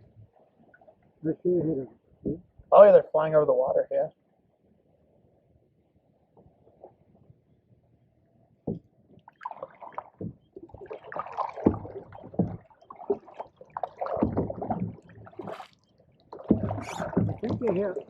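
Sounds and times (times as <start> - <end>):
paddle splashing in water: 9.2 - 18.0
sharp knocks: 11.6 - 12.6, 14.2 - 15.0, 16.4 - 17.8.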